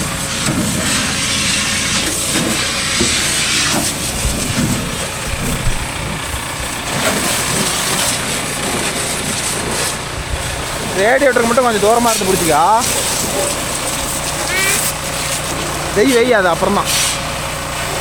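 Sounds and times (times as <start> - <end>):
motor running: 0.0 - 18.0
water jet hissing: 0.0 - 18.0.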